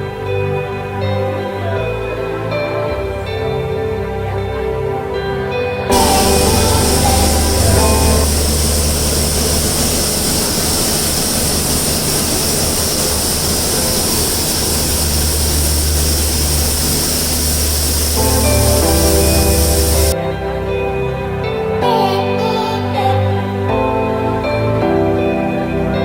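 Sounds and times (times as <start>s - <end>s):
train rushing noise: 5.9s - 20.2s.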